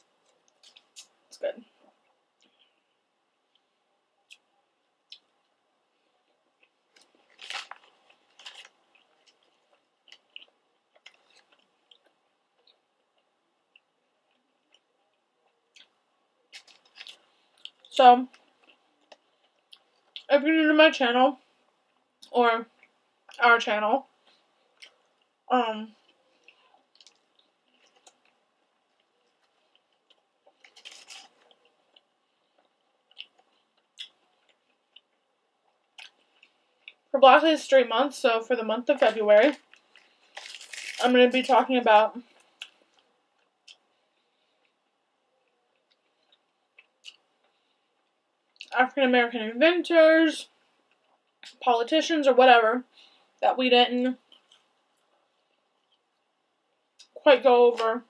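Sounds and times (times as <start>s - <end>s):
faint close-up chewing: 0.0s - 20.3s, 24.1s - 37.1s, 39.0s - 41.0s, 42.2s - 48.8s, 54.2s - 57.2s
chicken nugget crunching: 6.6s - 20.3s, 26.0s - 37.0s, 39.6s - 41.1s.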